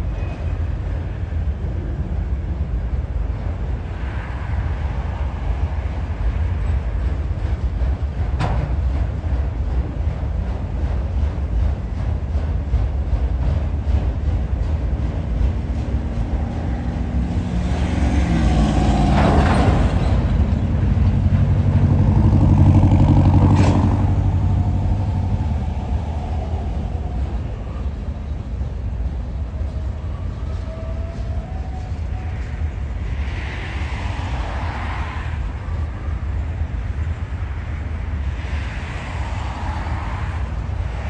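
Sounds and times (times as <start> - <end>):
freight train rumbling past: 0.0 - 41.0
road vehicle passing: 15.7 - 27.2.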